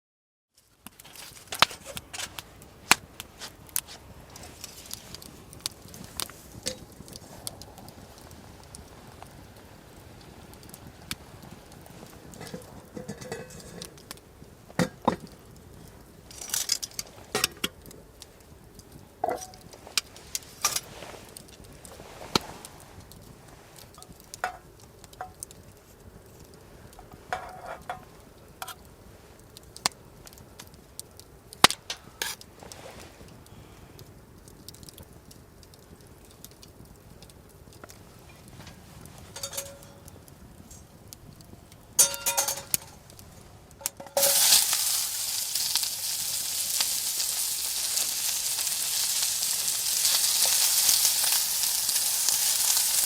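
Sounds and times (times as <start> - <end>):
cooking utensils clinking: 12.4 - 13.9, 19.2 - 19.6, 39.3 - 40.1, 42.0 - 43.0, 43.8 - 45.4
food sizzling in hot pan: 41.9 - 53.0.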